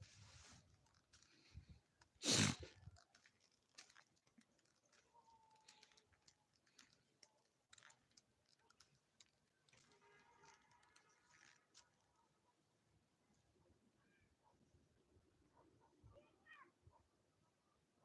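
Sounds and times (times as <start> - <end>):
faint clicks and ticks: 0.7 - 12.3.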